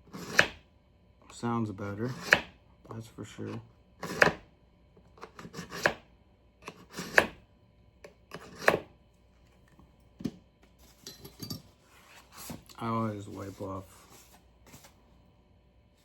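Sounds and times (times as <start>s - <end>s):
knife scraping through sharpener: 0.1s - 0.5s, 5.2s - 5.9s, 8.3s - 8.8s.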